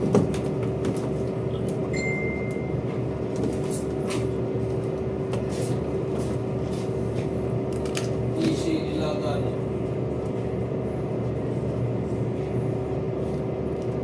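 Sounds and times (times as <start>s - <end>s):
short high tone: 2.0s - 2.8s.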